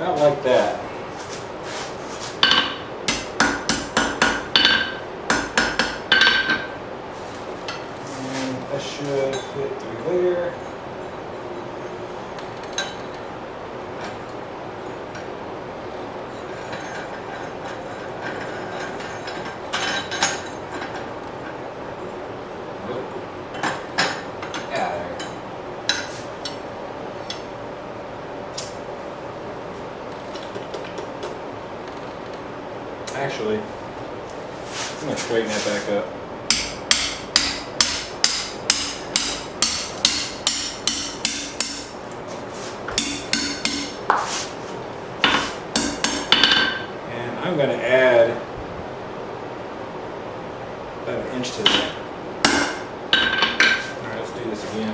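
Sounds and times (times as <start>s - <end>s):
hammer striking steel on anvil: 2.4s - 6.7s, 36.5s - 42.0s, 42.9s - 44.3s, 45.2s - 46.9s, 51.6s - 53.9s.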